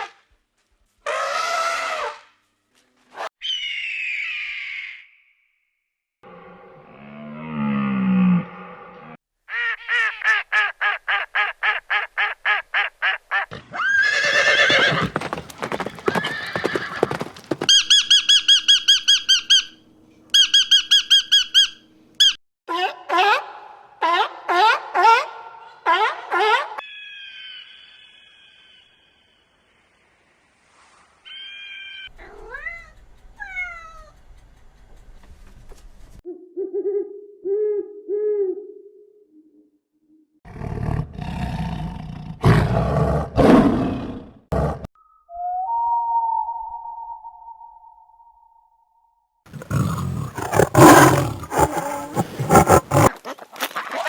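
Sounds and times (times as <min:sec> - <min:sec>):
harsh grating animal calls: 0:14.1 - 0:18.1, 0:49.5 - 0:53.1
rapid pitched animal calls: 0:14.3 - 0:18.5, 0:49.5 - 0:53.1.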